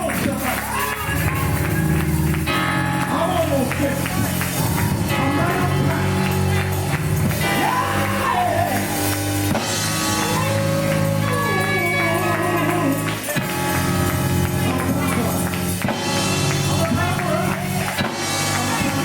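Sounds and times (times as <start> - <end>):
person singing gospel: 0.0 - 9.2, 9.8 - 19.0
held low chords: 0.0 - 19.0.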